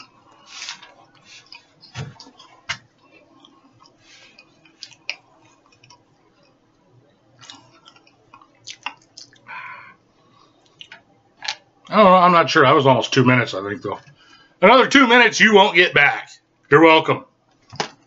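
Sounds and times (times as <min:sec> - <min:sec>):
person chewing crackers: 0:00.0 - 0:06.6, 0:07.4 - 0:11.9.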